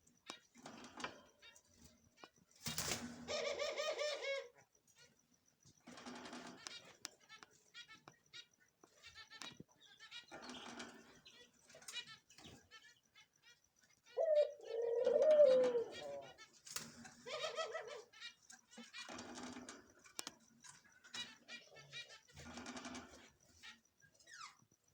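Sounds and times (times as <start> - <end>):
wavering bird call: 14.2 - 16.4.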